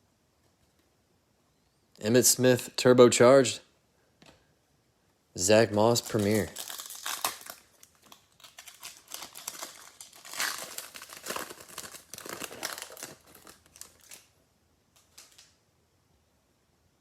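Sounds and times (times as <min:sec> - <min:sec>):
plastic wrapper crackling: 0:05.9 - 0:14.4, 0:15.0 - 0:15.6.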